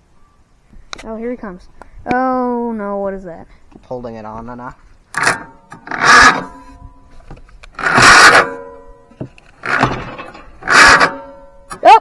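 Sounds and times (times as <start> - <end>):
faint steady whine: 0.0 - 12.0
starter motor cranking engine: 5.1 - 6.7, 7.6 - 12.0.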